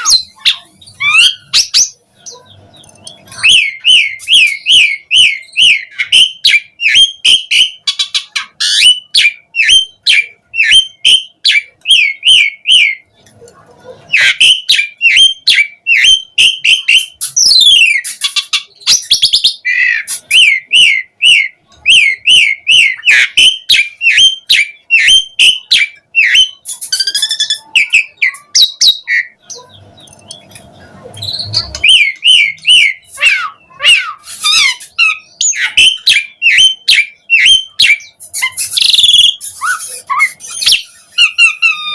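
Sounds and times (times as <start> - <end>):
starling singing: 0.0 - 13.1, 14.0 - 41.9.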